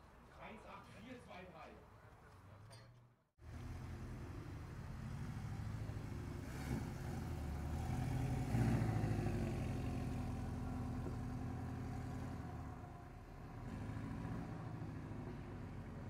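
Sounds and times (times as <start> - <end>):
car engine pulling away: 3.4 - 16.0.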